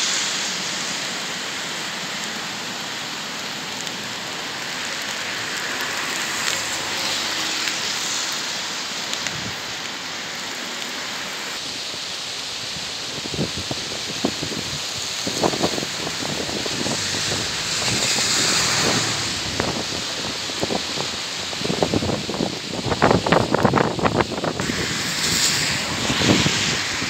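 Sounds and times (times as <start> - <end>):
sleet hissing: 15.3 - 20.6, 24.6 - 27.0
electric train running past: 16.7 - 19.8.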